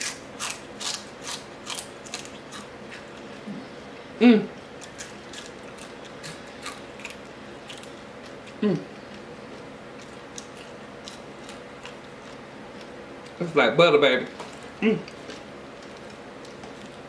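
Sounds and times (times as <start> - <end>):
crunchy chewing: 0.0 - 3.8, 4.5 - 13.5, 14.3 - 17.0
person humming mm: 3.4 - 4.5, 8.6 - 8.9.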